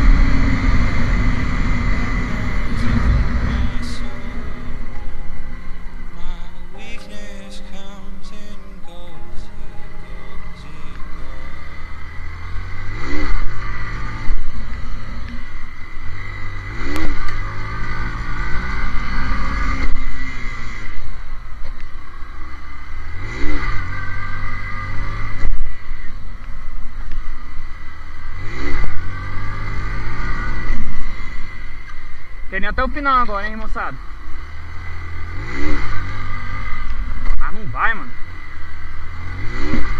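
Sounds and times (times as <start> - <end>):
motorcycle engine revving: 0.0 - 6.8, 10.4 - 39.9
wind rumble: 0.0 - 6.8.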